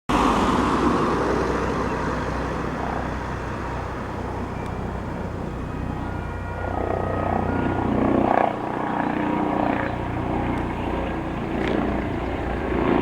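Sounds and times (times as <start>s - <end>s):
helicopter flying: 0.1s - 13.0s.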